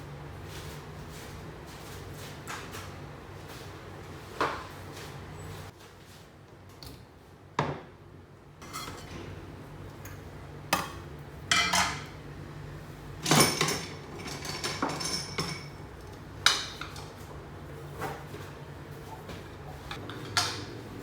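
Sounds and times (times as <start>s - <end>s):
dishes and utensils clinking: 8.6s - 9.3s, 10.8s - 12.1s, 13.2s - 15.8s.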